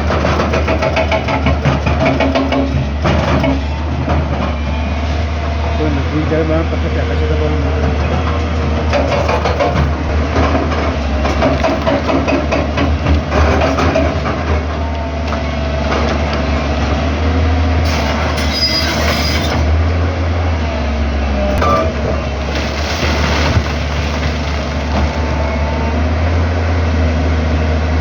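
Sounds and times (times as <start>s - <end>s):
diesel engine running: 0.0s - 28.0s
metal clanking and rattling: 8.4s - 17.0s, 21.5s - 25.7s.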